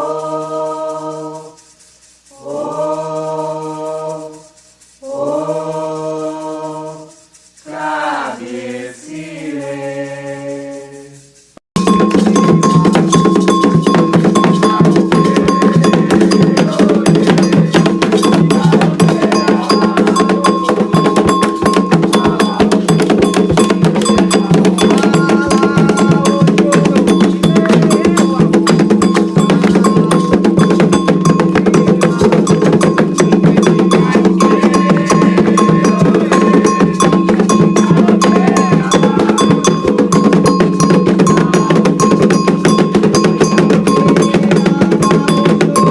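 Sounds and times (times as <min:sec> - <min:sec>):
agogo bell: 0:00.0 - 0:10.7, 0:11.3 - 0:45.9
drums playing fast rhythm: 0:11.8 - 0:45.9.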